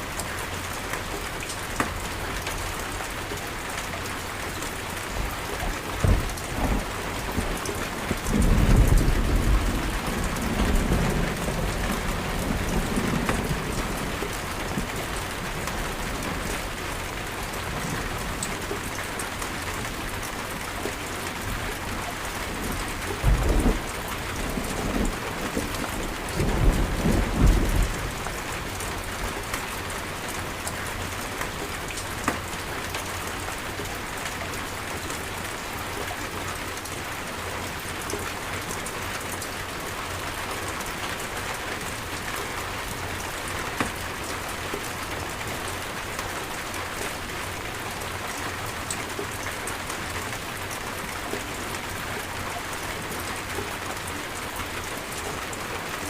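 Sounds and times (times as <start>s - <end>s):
rain falling hard: 0.0s - 56.0s
low thunder rumble: 6.0s - 15.6s, 22.6s - 28.7s.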